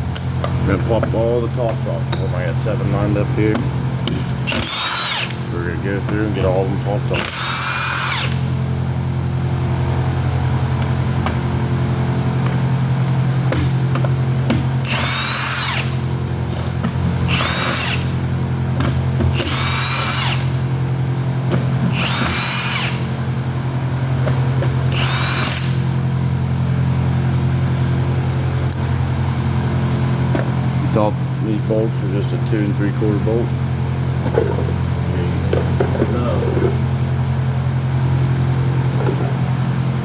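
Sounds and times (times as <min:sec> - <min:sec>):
steady low hum: 0:00.0 - 0:40.0
power tool running in bursts: 0:04.2 - 0:05.6, 0:07.0 - 0:08.6, 0:14.7 - 0:18.3, 0:19.3 - 0:20.7, 0:21.8 - 0:23.2, 0:24.8 - 0:26.0.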